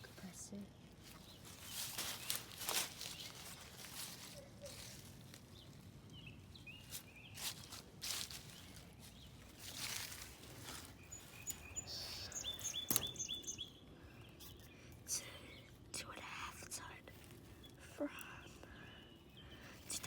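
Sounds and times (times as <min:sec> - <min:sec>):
small bird chirping: 0:01.0 - 0:20.0.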